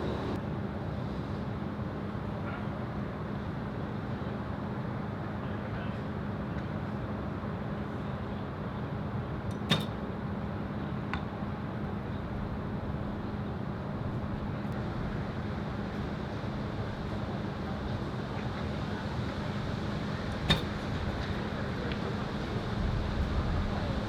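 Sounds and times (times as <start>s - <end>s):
arrow hitting target: 9.7s - 10.0s, 20.5s - 20.9s
bow string snap: 20.4s - 20.9s.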